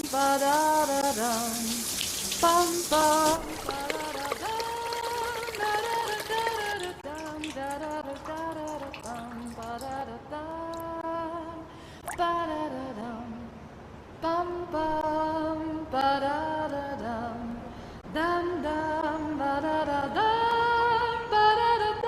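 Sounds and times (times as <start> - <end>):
person singing wordless melody: 0.0 - 13.6, 14.2 - 22.0.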